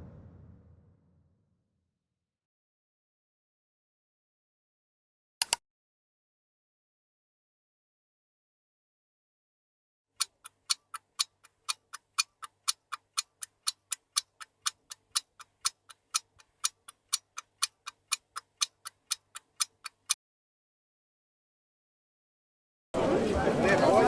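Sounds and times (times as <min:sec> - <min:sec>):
clock ticking: 0:10.2 - 0:20.2.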